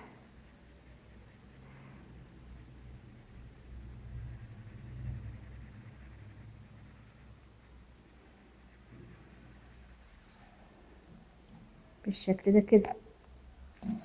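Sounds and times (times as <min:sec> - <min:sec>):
pencil shading on paper: 0:00.0 - 0:10.7.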